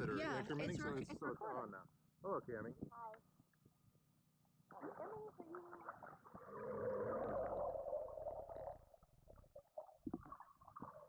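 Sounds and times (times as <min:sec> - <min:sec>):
water gurgling underwater: 0:04.7 - 0:11.0.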